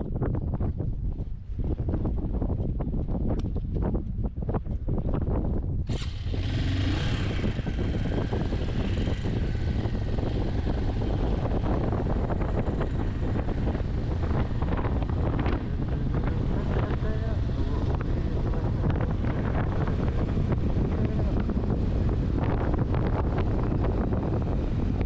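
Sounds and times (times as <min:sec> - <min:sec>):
wind buffeting microphone: 0:00.0 - 0:25.0
motorcycle engine running: 0:05.8 - 0:25.0.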